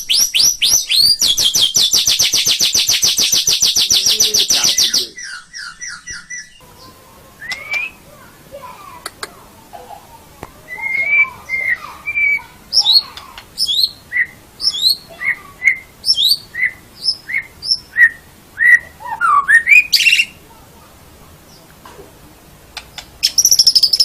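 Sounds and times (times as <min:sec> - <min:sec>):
bird singing whistled notes: 0:00.0 - 0:08.0, 0:10.7 - 0:20.4, 0:23.2 - 0:24.0.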